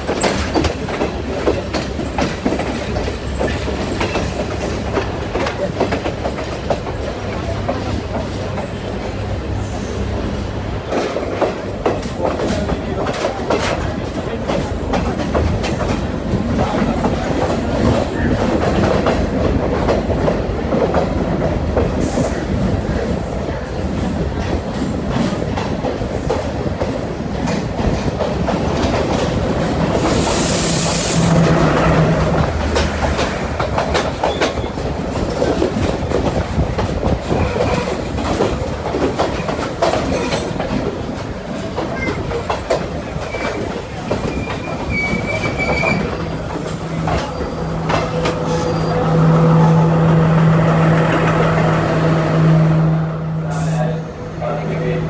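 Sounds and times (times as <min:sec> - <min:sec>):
train running rumble: 0:00.0 - 0:55.0
wheels clicking over rail joints: 0:10.8 - 0:52.0.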